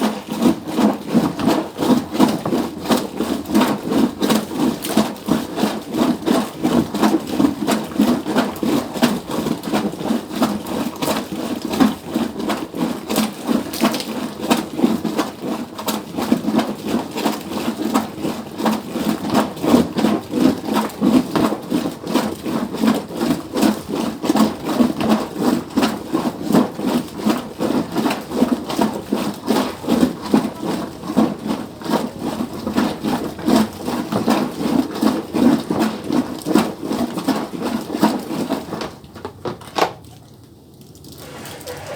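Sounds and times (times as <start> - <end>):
manual washing machine knocking: 0.0 - 39.7, 41.2 - 41.9.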